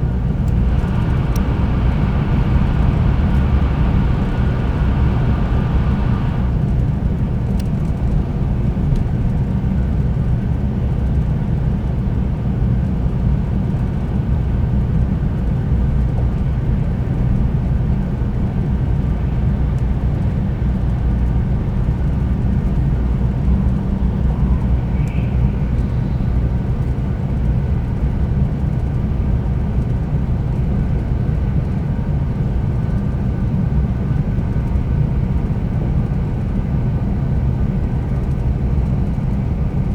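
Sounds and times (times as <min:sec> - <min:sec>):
train wheels rumbling: 0:00.0 - 0:06.8
hiss rush: 0:00.5 - 0:06.6.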